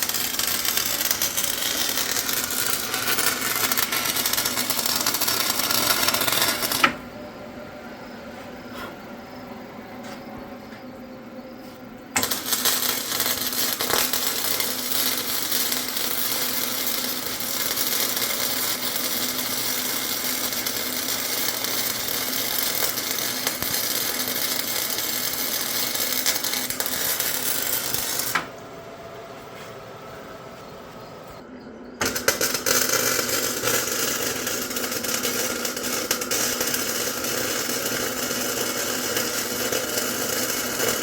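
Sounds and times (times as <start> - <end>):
welding arc crackling: 0.0 - 7.0, 12.2 - 28.5, 32.0 - 41.0.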